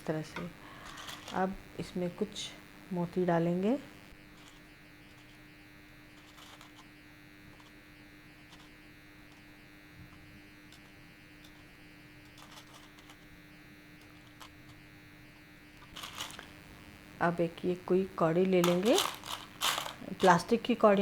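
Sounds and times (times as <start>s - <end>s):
faint electrical hum: 0.0s - 21.0s
beads clicking: 12.2s - 13.3s, 15.8s - 16.6s, 18.4s - 20.5s.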